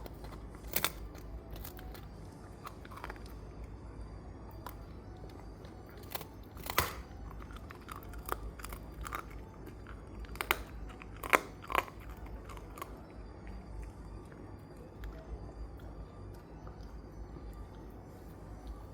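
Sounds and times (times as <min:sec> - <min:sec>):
dog gnawing a bone: 0:00.0 - 0:03.8, 0:04.5 - 0:17.1.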